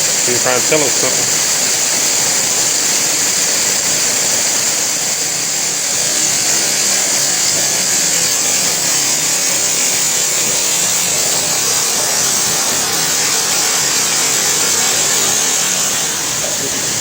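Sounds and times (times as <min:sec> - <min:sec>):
indoor waterfall rushing: 0:00.0 - 0:17.0.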